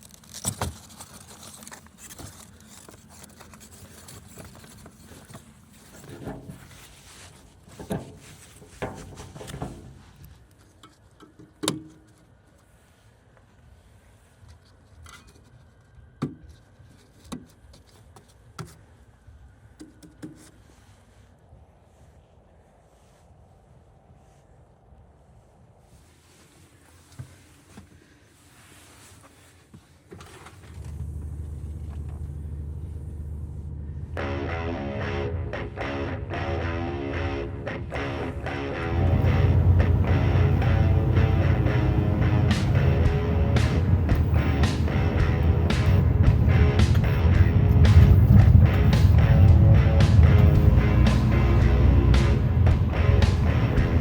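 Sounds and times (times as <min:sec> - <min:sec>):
truck engine rumbling: 0:30.7 - 0:54.0.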